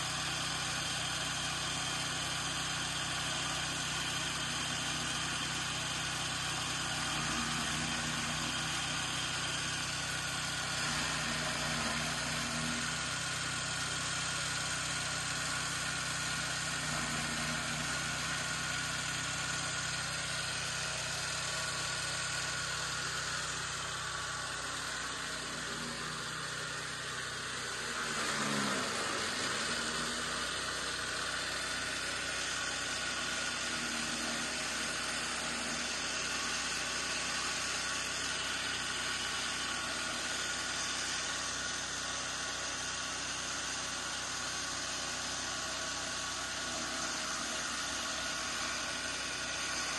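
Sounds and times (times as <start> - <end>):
chaff cutter humming: 4.3 - 13.2, 16.4 - 37.6, 45.5 - 49.9.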